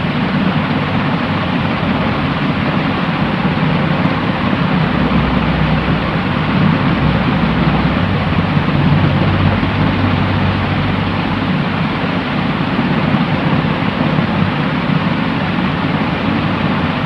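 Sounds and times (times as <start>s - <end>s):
white noise hiss: 0.0s - 17.0s
low rumble: 1.2s - 13.9s.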